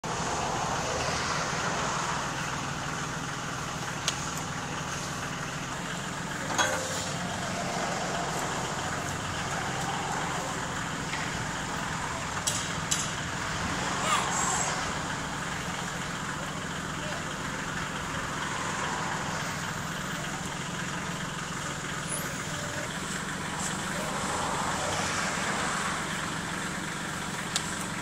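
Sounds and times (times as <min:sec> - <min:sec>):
diesel engine running: 0:00.0 - 0:28.0
backhoe clunks: 0:03.8 - 0:07.5, 0:10.7 - 0:13.4.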